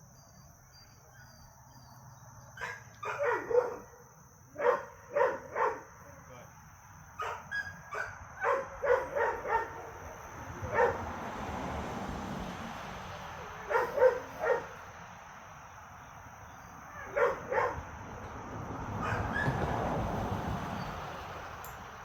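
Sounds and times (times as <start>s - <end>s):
dog barking: 2.6s - 6.3s, 7.2s - 11.1s, 13.4s - 14.8s, 16.9s - 17.9s, 18.9s - 19.6s.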